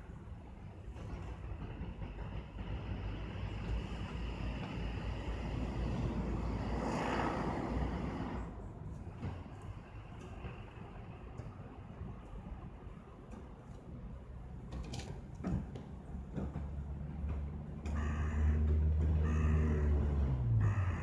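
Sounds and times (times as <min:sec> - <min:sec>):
vehicle passing by: 0:04.8 - 0:08.6, 0:18.0 - 0:21.0.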